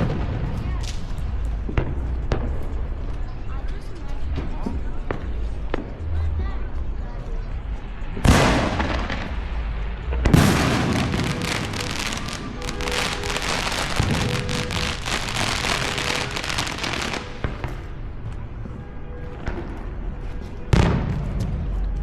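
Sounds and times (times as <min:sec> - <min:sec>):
fireworks crackling and popping: 0:00.0 - 0:03.4, 0:07.8 - 0:18.1
fireworks boom: 0:08.2 - 0:17.9.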